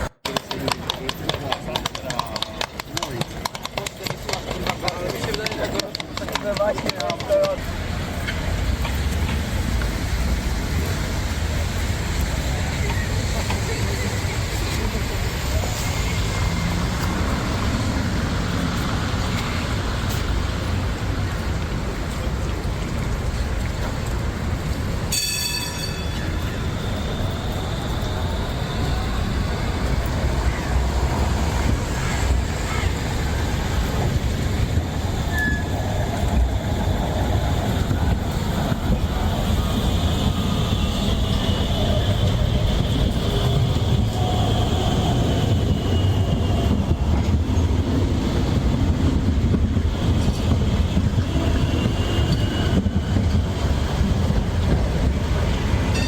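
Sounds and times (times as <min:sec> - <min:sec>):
tram rumbling on rails: 0:00.0 - 0:56.0
short bright ring: 0:25.1 - 0:26.2
high wheel squeal: 0:25.1 - 0:34.0, 0:34.7 - 0:47.2, 0:49.9 - 0:53.7.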